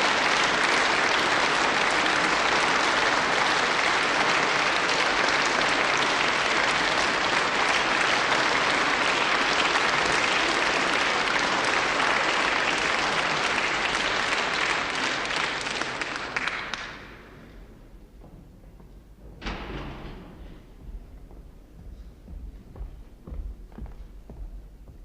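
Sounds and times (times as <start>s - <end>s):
audience applauding: 0.0s - 17.3s.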